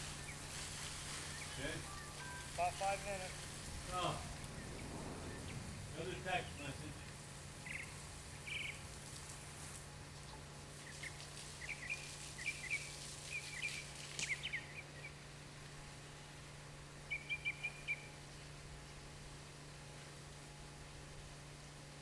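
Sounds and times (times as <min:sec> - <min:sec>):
birds chirping: 0:00.0 - 0:09.5, 0:10.2 - 0:15.2
low hum: 0:00.0 - 0:10.6.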